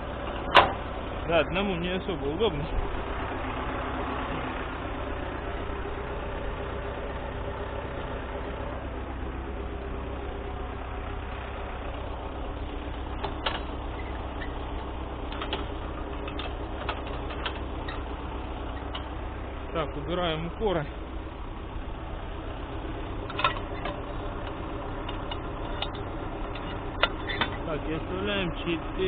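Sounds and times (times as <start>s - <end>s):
tractor diesel engine idling: 0.0s - 29.0s
metallic clicks and knocks: 13.2s - 13.8s, 15.3s - 18.0s, 23.2s - 27.7s.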